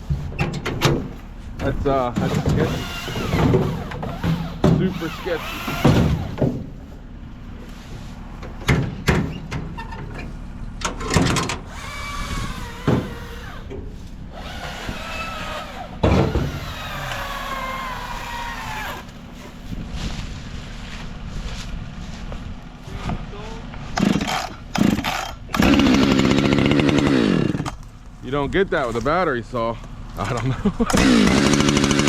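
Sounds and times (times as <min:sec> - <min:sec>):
metal and wood clanks: 0:00.0 - 0:06.9, 0:08.4 - 0:11.9, 0:12.6 - 0:17.6, 0:24.0 - 0:26.6
engine running at low speed: 0:00.0 - 0:32.0.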